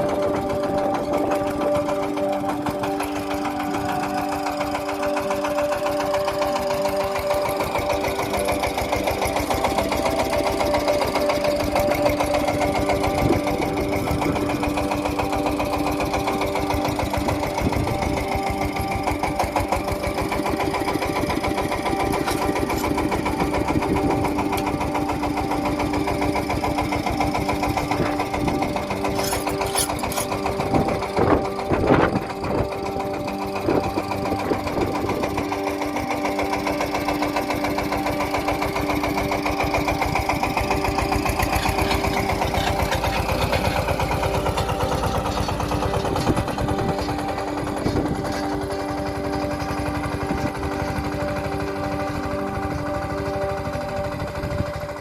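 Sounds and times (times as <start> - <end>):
engine knocking: 0.0 - 55.0
loud metallic clanks: 29.1 - 30.4.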